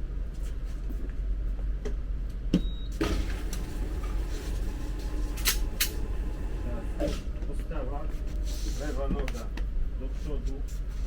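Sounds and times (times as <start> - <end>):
steady low hum: 3.1 - 11.0.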